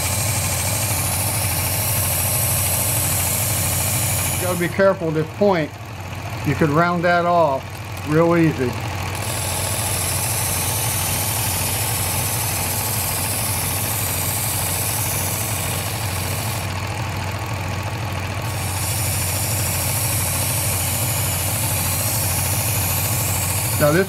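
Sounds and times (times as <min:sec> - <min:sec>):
electric sharpener motor running: 0:00.0 - 0:24.0
knife blade hissing on belt: 0:09.2 - 0:16.6, 0:18.5 - 0:24.0.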